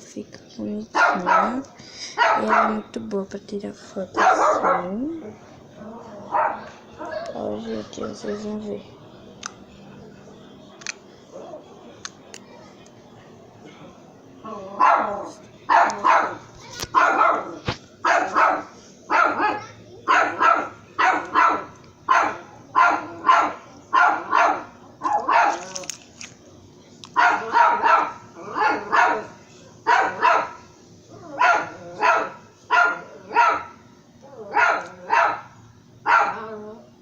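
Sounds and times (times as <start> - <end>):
dog barking: 0.9 - 1.6, 2.2 - 2.8, 4.2 - 5.0, 6.2 - 7.3, 14.8 - 25.7, 27.1 - 30.6, 31.2 - 33.8, 34.4 - 36.5.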